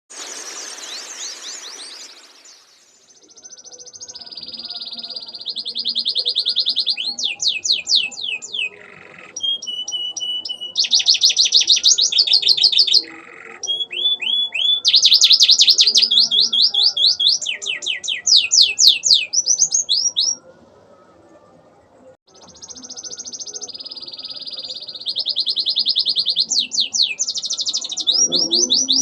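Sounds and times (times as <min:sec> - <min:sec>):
canary singing: 0:03.2 - 0:20.5, 0:22.3 - 0:29.0.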